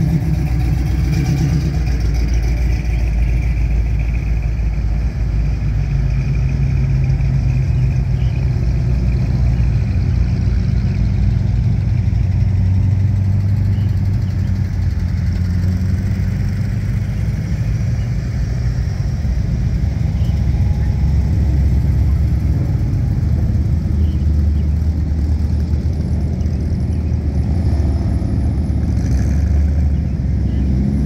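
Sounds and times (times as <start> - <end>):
car engines driving past: 0.0 - 31.0.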